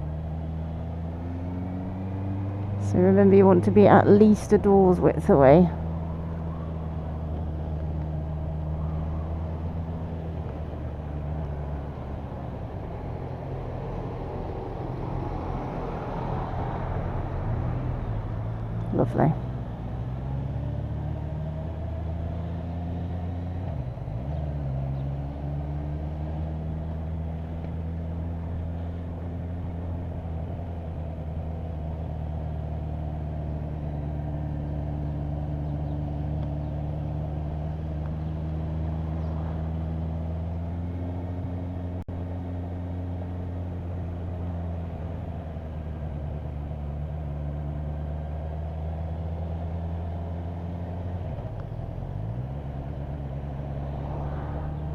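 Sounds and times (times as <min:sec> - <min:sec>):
motorcycle engine running: 0:00.0 - 0:14.0, 0:17.3 - 0:54.9.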